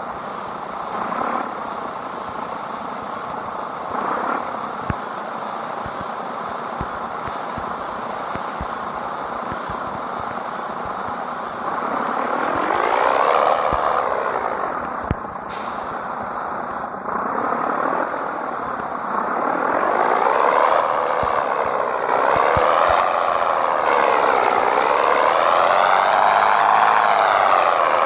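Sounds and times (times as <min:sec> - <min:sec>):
diesel truck engine pulling away: 0:00.2 - 0:28.0
air release hiss: 0:15.5 - 0:16.8.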